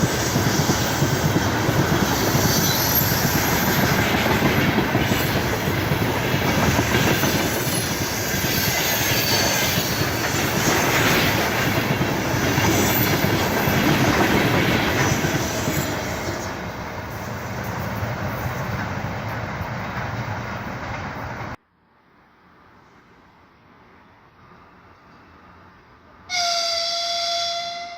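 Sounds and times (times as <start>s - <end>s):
train wheels squealing: 0.0s - 5.7s, 6.6s - 11.4s, 12.3s - 16.6s
train wheels clattering: 0.0s - 21.6s.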